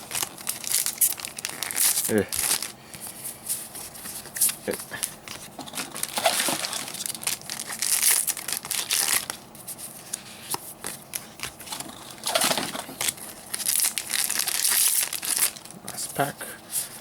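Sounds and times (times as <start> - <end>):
foil wrappers tearing and crinkling: 0.0 - 2.8, 5.6 - 9.4, 11.1 - 16.3.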